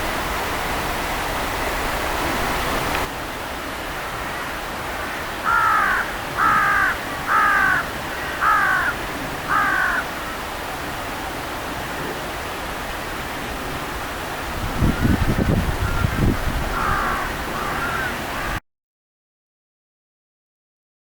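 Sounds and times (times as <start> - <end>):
crow cawing: 4.1 - 10.4, 15.8 - 18.6.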